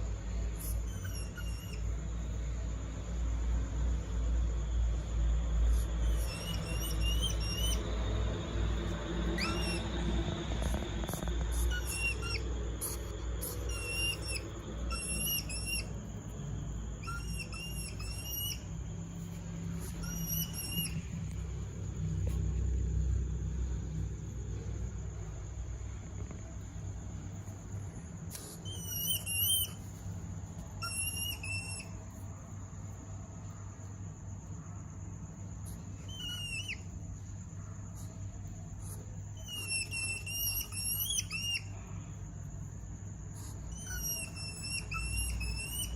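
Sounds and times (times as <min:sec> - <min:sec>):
hedgehog high whistled chirps: 0:00.4 - 0:02.0, 0:05.7 - 0:08.2, 0:08.8 - 0:21.4, 0:28.3 - 0:30.0, 0:30.6 - 0:32.0, 0:35.7 - 0:36.9, 0:38.8 - 0:41.8, 0:43.4 - 0:45.9.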